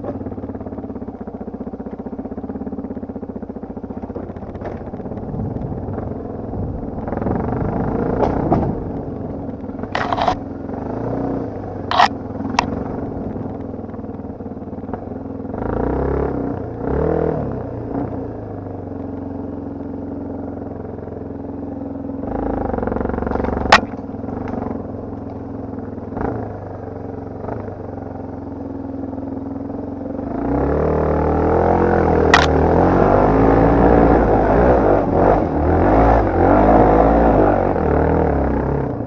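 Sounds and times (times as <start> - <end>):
dirt bike engine revving: 4.1 - 13.5, 14.9 - 18.3, 30.2 - 39.0.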